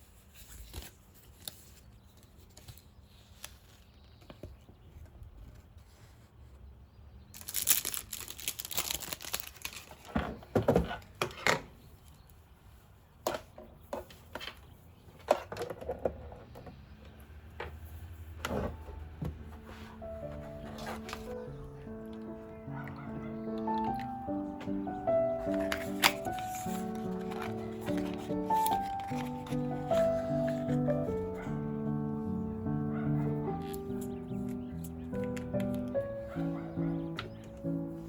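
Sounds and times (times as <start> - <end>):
rustling and crinkling: 0.0 - 16.8, 17.6 - 38.0.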